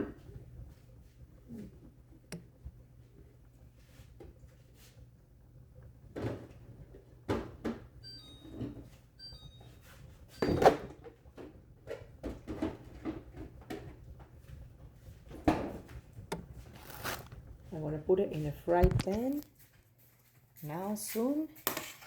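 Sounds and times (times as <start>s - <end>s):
kitchen knocks and clatters: 18.7s - 19.4s, 21.5s - 22.0s.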